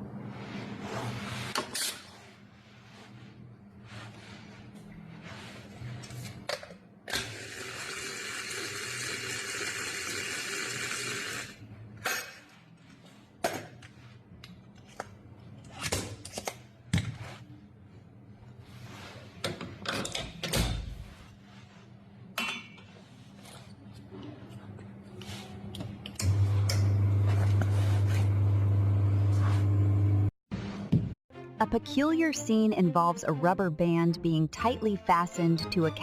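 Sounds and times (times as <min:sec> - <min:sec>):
kitchen appliance motor whirring: 0:07.2 - 0:11.6.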